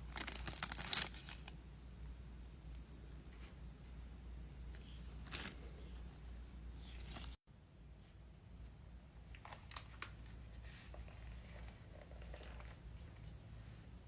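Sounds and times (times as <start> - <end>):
packaging clicks and crinkles: 0.0 - 1.6
low room hum: 0.0 - 14.0.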